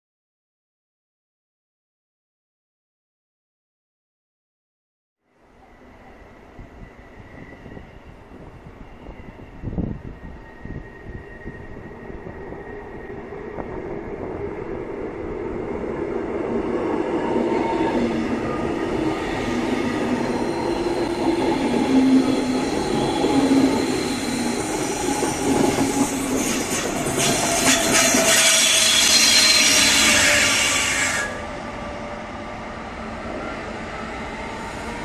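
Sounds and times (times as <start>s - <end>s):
train rolling noise: 5.6s - 35.0s
wheels squealing: 17.4s - 31.5s.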